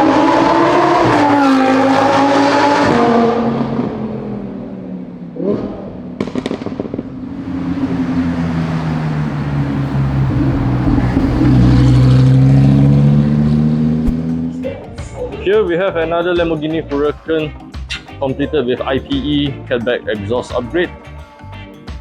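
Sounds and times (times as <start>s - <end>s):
sports car engine revving: 0.0s - 14.9s
exhaust pops: 5.3s - 7.6s, 9.8s - 12.8s.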